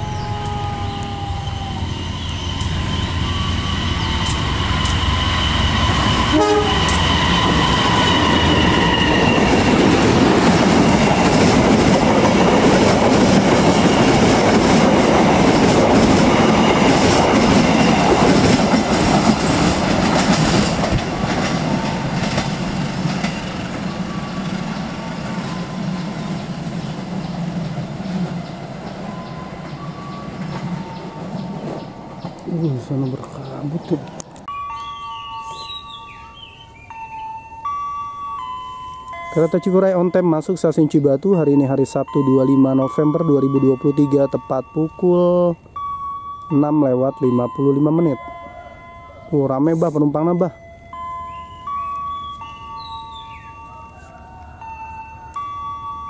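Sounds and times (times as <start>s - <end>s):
diesel locomotive horn: 0.0s - 10.0s
train rumbling past: 0.0s - 56.0s
wheels clattering over rail joints: 4.2s - 32.5s.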